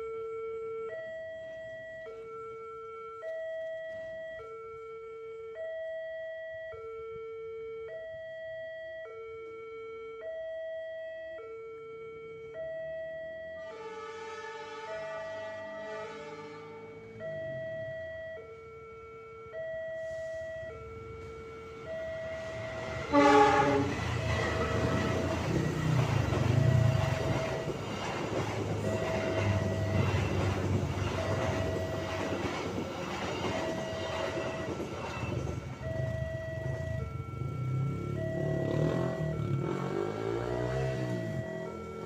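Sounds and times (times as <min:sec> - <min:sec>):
level crossing two-tone warning signal: 0:00.0 - 0:42.0
train horn blast: 0:13.6 - 0:17.2, 0:22.4 - 0:27.7, 0:28.8 - 0:32.0
train passing with rumble and rattle: 0:13.7 - 0:18.5, 0:19.8 - 0:42.0.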